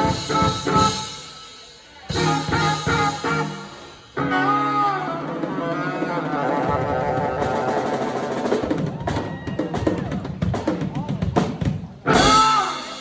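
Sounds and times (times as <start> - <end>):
funk band with horns: 0.0 - 13.0
drum fill on snare and bass drum: 6.3 - 13.0.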